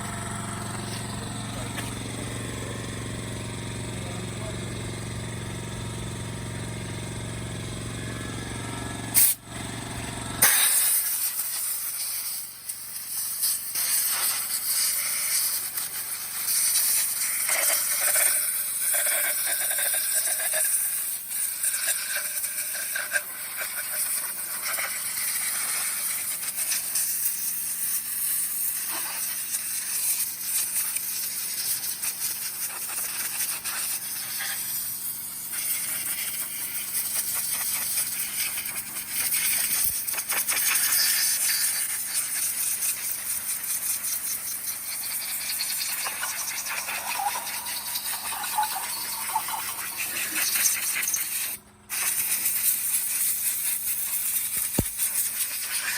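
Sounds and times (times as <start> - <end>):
car engine running: 0.0 - 10.4
hiss: 9.1 - 9.4, 10.4 - 55.9.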